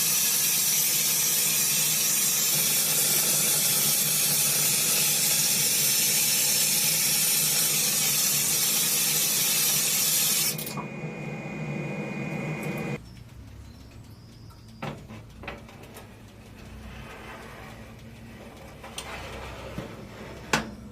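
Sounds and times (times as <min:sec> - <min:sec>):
hissing spray: 0:00.0 - 0:10.6.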